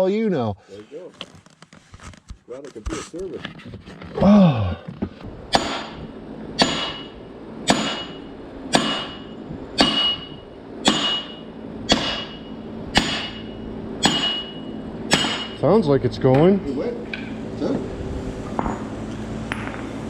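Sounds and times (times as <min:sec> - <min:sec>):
hammer striking steel: 0:05.5 - 0:15.6.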